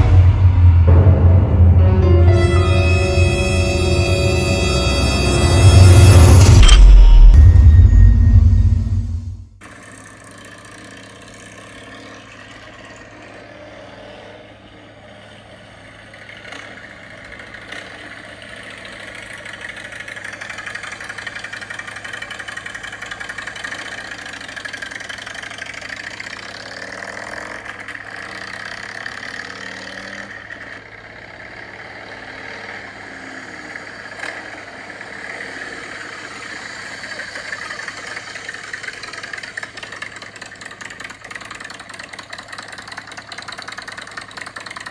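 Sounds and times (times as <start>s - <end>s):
motorcycle engines idling: 9.9s - 44.9s.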